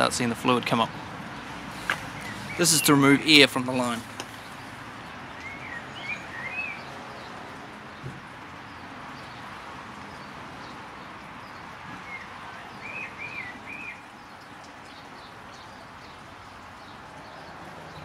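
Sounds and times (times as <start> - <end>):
outdoor background noise: 0.0 - 18.0
small birds chirping: 0.2 - 18.0
arched whistled bird notes: 5.4 - 6.9, 12.1 - 14.0.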